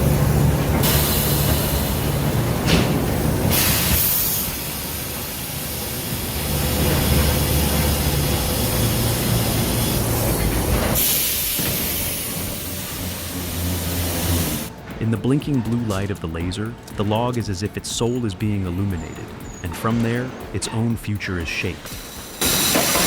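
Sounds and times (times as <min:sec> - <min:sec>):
machinery rumbling: 0:00.0 - 0:23.0
hiss bursts: 0:00.2 - 0:14.7, 0:21.8 - 0:23.0.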